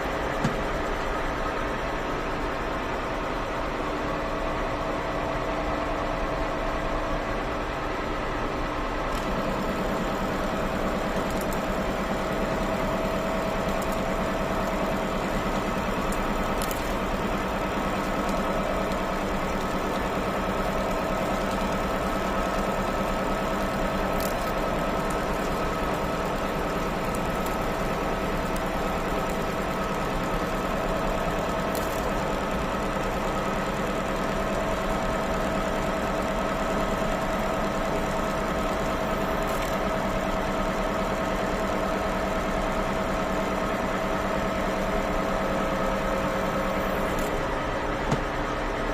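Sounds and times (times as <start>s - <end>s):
constant machine noise: 0.0s - 48.9s
milling machine whine: 0.0s - 48.9s.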